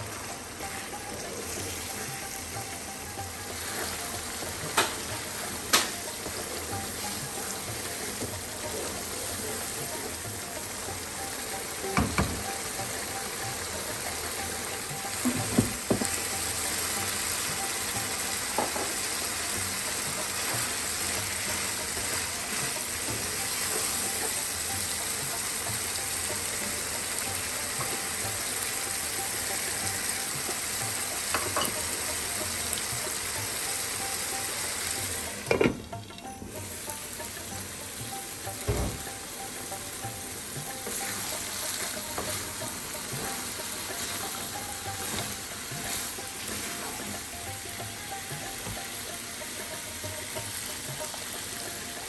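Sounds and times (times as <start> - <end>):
meat curry sizzling in pan: 0.0 - 52.0
wooden spatula knocking pan: 11.9 - 12.5, 15.1 - 16.3.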